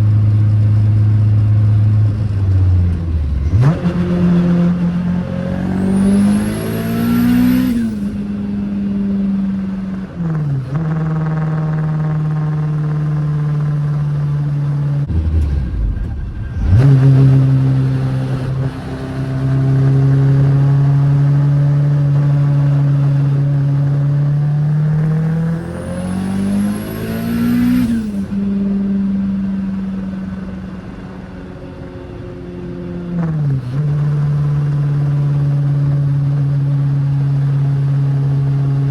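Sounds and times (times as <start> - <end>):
car engine revving: 0.0 - 32.2
loud low rumble: 15.1 - 20.8.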